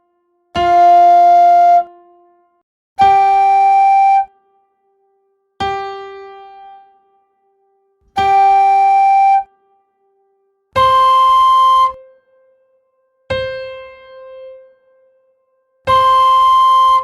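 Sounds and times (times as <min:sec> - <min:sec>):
held practice notes: 0:00.6 - 0:01.9, 0:03.0 - 0:04.3, 0:08.2 - 0:09.5, 0:10.8 - 0:12.0, 0:15.9 - 0:17.0.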